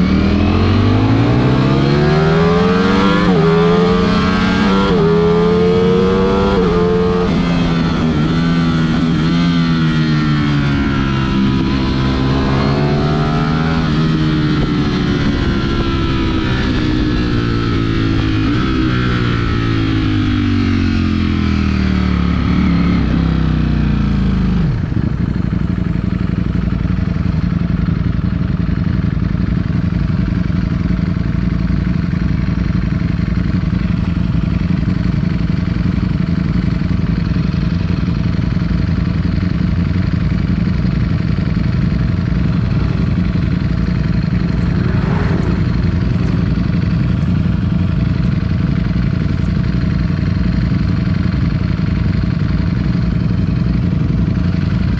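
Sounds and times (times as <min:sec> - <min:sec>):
motorcycle engine slowing to idle: 0:00.0 - 0:54.9.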